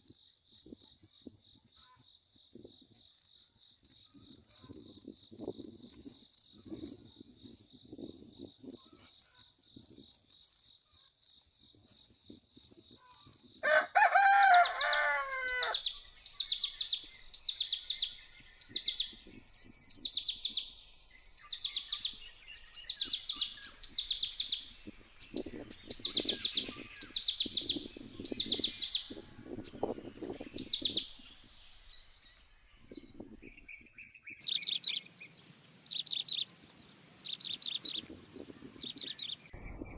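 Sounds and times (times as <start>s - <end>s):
insects trilling: 0.0s - 39.4s
birds chirping: 12.8s - 39.9s
loud bird call falling pitch: 13.6s - 15.8s.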